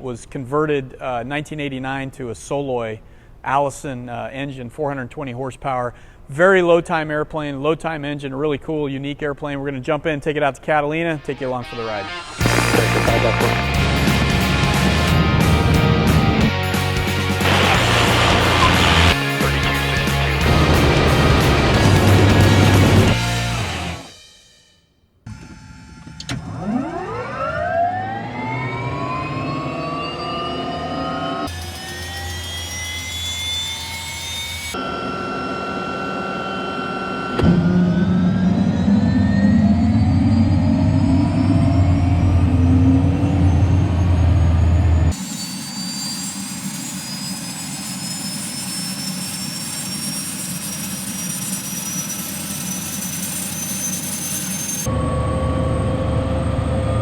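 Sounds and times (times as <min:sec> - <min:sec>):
turbine engine whine spooling up: 0:12.1 - 0:19.2, 0:26.6 - 0:57.0
low hum: 0:12.4 - 0:16.5, 0:17.4 - 0:19.2.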